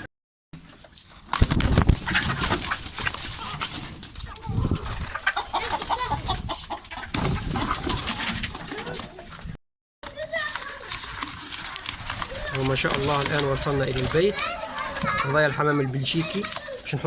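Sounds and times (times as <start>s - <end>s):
chickens and birds calling: 1.8s - 9.5s.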